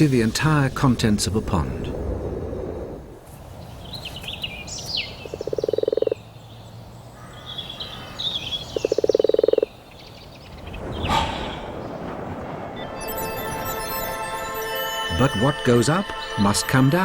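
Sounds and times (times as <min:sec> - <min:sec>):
frog croaking trills: 0:05.2 - 0:06.2, 0:08.5 - 0:09.9.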